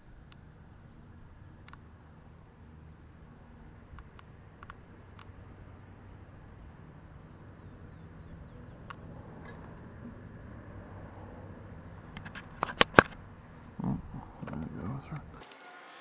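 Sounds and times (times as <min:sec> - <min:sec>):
faint clicks: 0:01.6 - 0:01.9, 0:03.9 - 0:05.4
bird chirps: 0:07.3 - 0:09.1.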